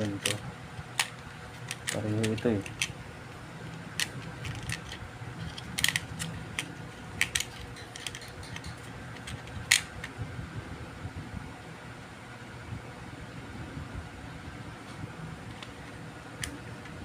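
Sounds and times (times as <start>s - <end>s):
small parts and tools clicking: 0.0s - 3.0s, 3.7s - 10.1s
steady low hum: 0.0s - 17.0s.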